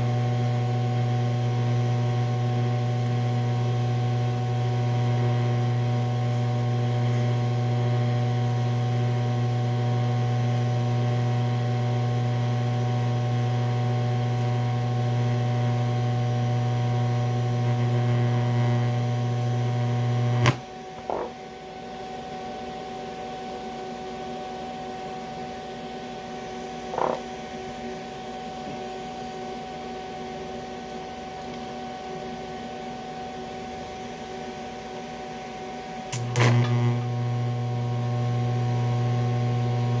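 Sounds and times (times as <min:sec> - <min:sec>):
idling welding machine hum: 0:00.0 - 0:21.5, 0:26.3 - 0:27.4, 0:35.7 - 0:40.0
welding arc hum: 0:00.0 - 0:21.5, 0:26.4 - 0:27.4, 0:36.0 - 0:40.0
welder switch click: 0:20.4 - 0:21.3, 0:36.2 - 0:36.9.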